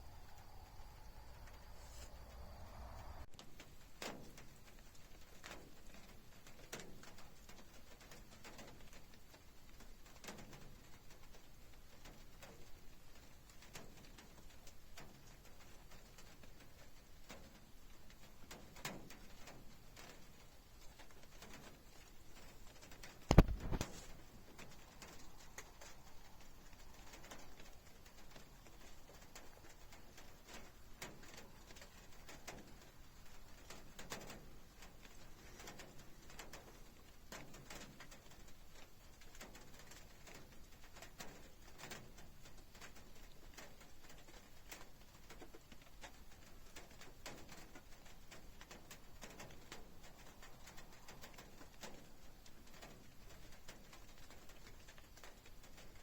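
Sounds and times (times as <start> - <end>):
soft low swells: 0.0 - 3.3
faint rain: 0.0 - 56.0
raindrops ticking: 3.3 - 56.0.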